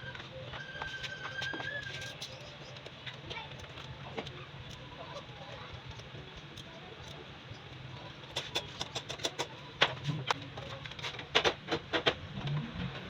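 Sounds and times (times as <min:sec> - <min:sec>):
hand tools clicking and knocking: 0:08.2 - 0:12.2.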